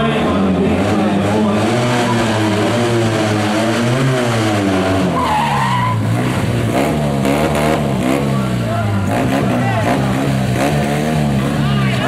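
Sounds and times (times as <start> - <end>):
car engine revving: 0.0 - 12.0
tyre squeal: 5.1 - 6.1.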